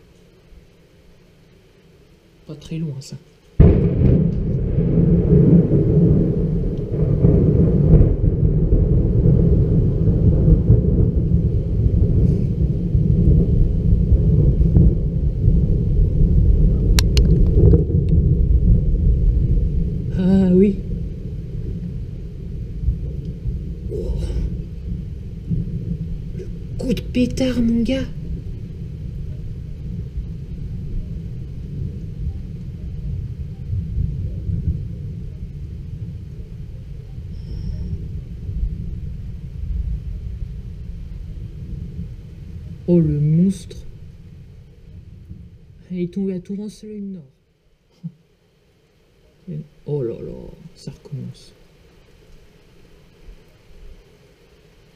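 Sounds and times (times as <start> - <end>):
thunder rumble: 3.5 - 54.9.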